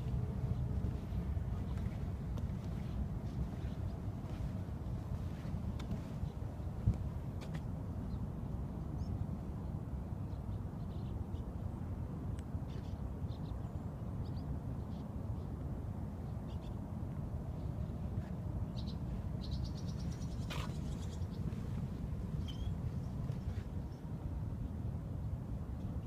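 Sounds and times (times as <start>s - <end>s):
steady low rumble: 0.0s - 26.0s
bird chirps and calls: 18.7s - 21.6s, 22.4s - 23.6s.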